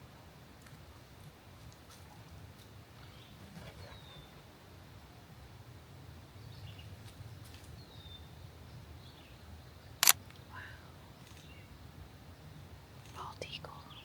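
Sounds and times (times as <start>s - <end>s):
low outdoor rumble: 0.0s - 14.0s
sharp loud click: 10.0s - 10.2s.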